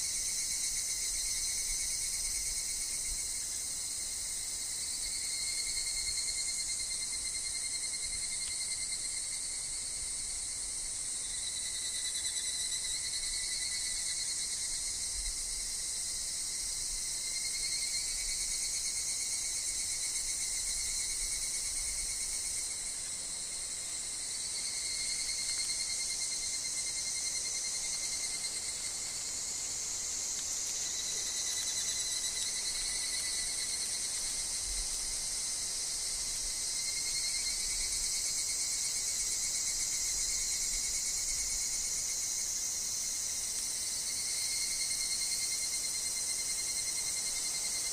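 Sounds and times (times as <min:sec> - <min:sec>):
cicadas and insects chorus: 0:00.0 - 0:47.9.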